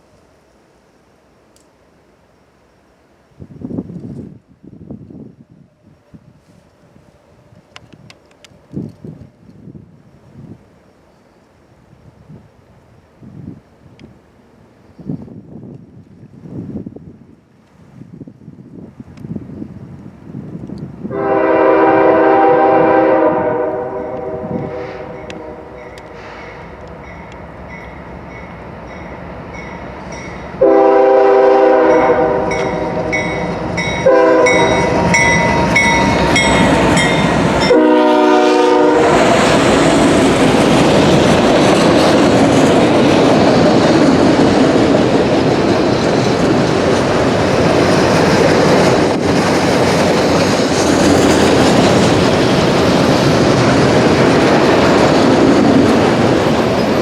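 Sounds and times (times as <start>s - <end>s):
freight train rumbling past: 18.0s - 57.0s
locomotive air horn blasts: 21.1s - 26.4s, 30.6s - 39.4s.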